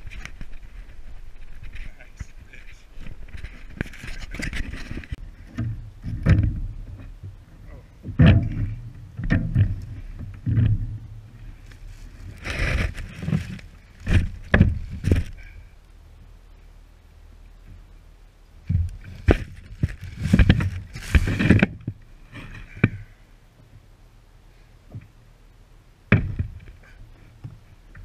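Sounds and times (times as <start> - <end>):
hollow knocks on kayak: 26.1 - 26.6.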